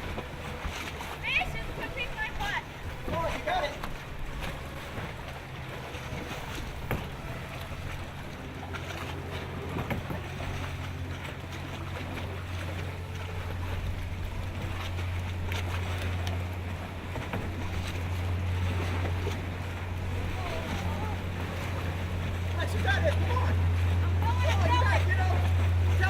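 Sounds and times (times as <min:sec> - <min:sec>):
steady low hum: 0:00.0 - 0:26.0
water noise: 0:00.0 - 0:26.0
wind: 0:00.0 - 0:26.0.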